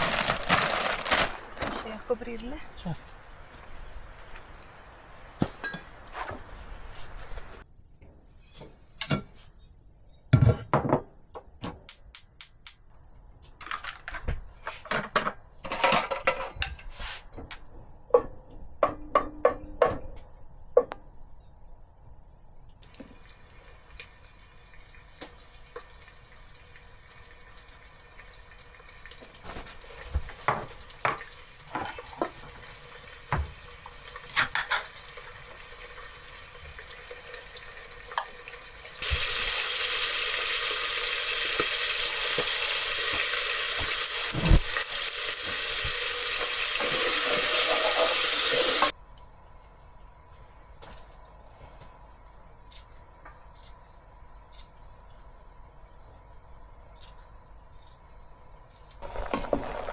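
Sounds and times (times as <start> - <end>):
running water hiss: 22.9 - 48.9.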